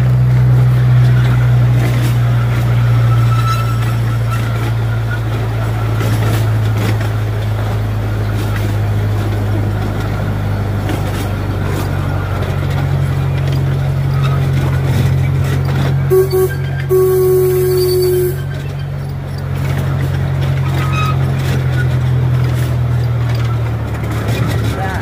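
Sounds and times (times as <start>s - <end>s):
train engine drone: 0.0s - 25.0s
faint high squeal: 16.1s - 18.6s.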